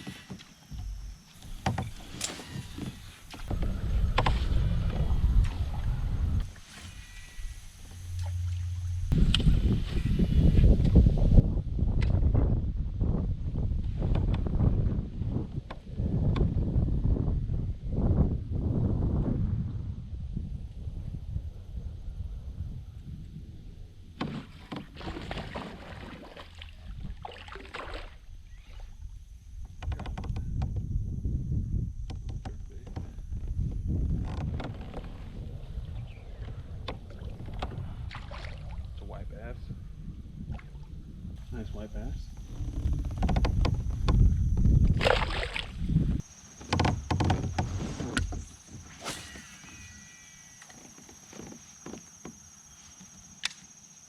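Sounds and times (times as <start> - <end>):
knocks and rattles on a kayak: 0.0 - 5.8, 13.5 - 17.3, 24.1 - 28.0, 29.6 - 38.3, 41.9 - 49.0
low wind rumble on microphone: 0.7 - 49.0.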